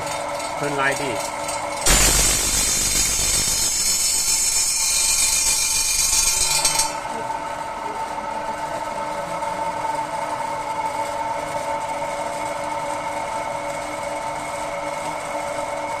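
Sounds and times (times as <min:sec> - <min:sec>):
cutting machine motor whine: 0:01.9 - 0:08.9.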